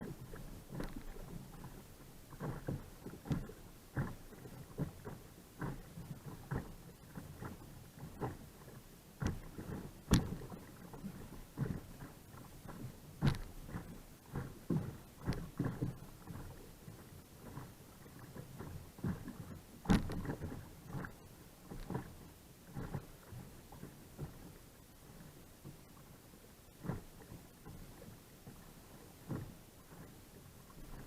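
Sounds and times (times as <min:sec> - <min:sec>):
paddle splashing in water: 0:00.0 - 0:31.0
sharp splashes or knocks: 0:10.1 - 0:10.4, 0:19.8 - 0:20.4.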